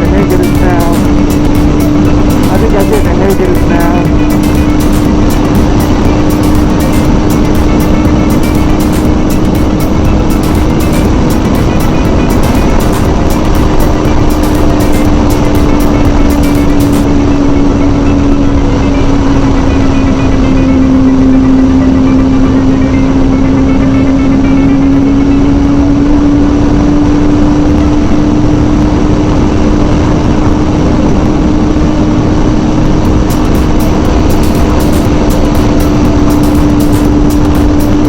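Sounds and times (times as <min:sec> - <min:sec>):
motorcycle engine at high revs: 0:00.0 - 0:17.6
wind rush over microphone: 0:00.0 - 0:38.0.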